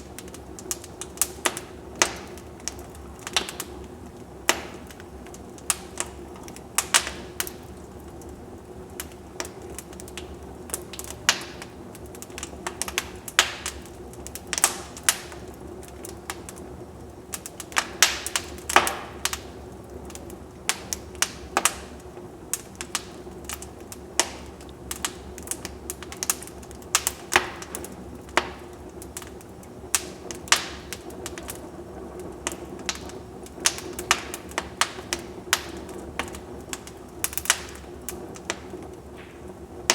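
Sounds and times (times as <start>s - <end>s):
faint steady hiss: 0.0s - 39.9s
wood fire crackling and popping: 0.0s - 39.9s.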